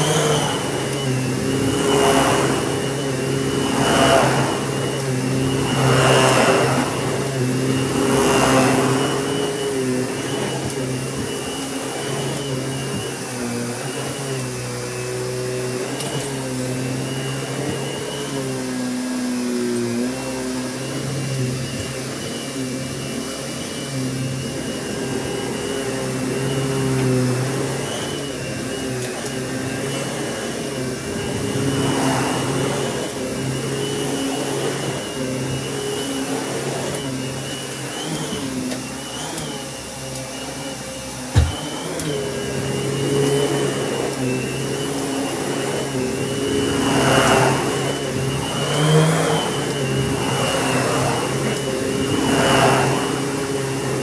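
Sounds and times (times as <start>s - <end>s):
vacuum cleaner running: 0.0s - 54.0s
sharp knock: 41.4s - 41.6s.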